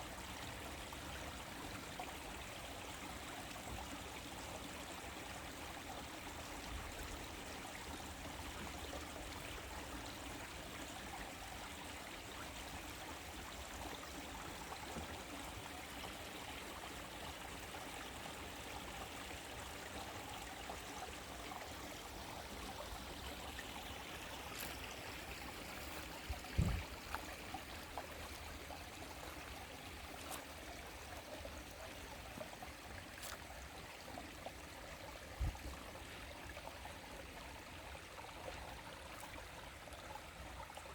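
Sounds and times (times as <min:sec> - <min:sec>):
small stream flowing: 0:00.0 - 0:40.9
dull low thumps: 0:26.4 - 0:26.9.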